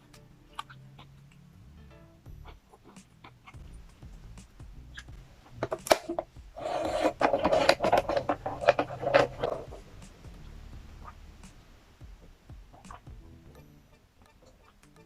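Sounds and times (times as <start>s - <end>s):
packaging crackling and rustling: 5.6s - 9.8s.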